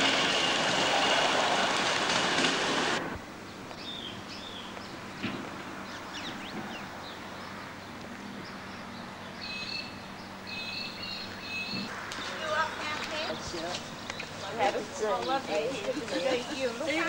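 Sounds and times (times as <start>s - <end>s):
birds chirping and whistling: 3.5s - 16.6s.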